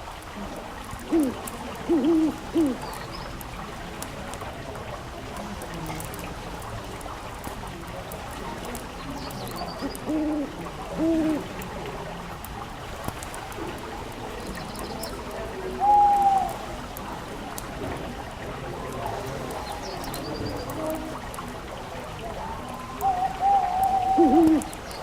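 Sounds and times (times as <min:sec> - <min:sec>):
low bird calls: 0:01.0 - 0:03.4, 0:09.0 - 0:11.5, 0:14.3 - 0:16.7, 0:22.1 - 0:25.0.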